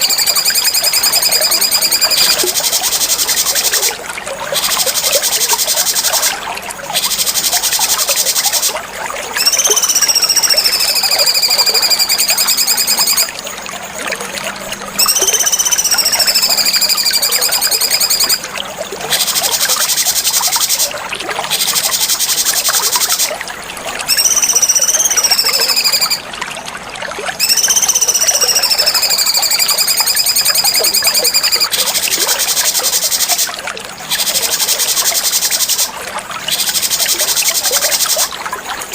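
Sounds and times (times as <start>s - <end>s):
bird fast high trill: 0.0s - 4.0s, 4.6s - 8.8s, 9.4s - 13.3s, 15.0s - 18.4s, 24.1s - 26.2s, 27.4s - 33.5s
long whistled bird note: 9.4s - 13.3s, 15.0s - 18.4s, 24.1s - 26.2s, 27.4s - 31.7s.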